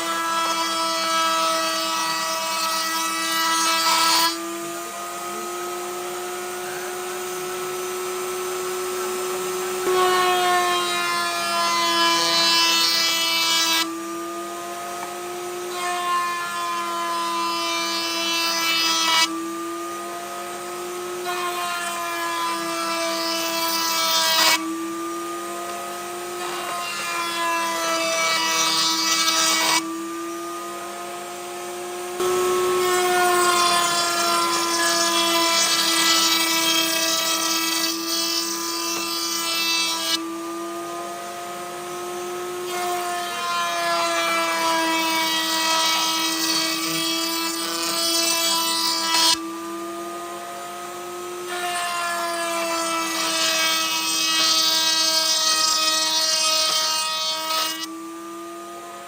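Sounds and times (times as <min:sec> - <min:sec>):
power tool cutting wood: 0:00.0 - 0:59.0.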